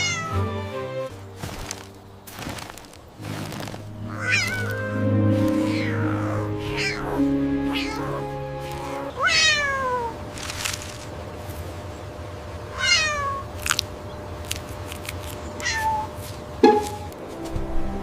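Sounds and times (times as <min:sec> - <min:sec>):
cat meowing: 0:00.0 - 0:00.3, 0:04.1 - 0:04.9, 0:05.6 - 0:08.3, 0:09.2 - 0:10.1, 0:12.7 - 0:13.5, 0:15.6 - 0:16.1
soft background music: 0:00.0 - 0:09.5, 0:16.6 - 0:18.0.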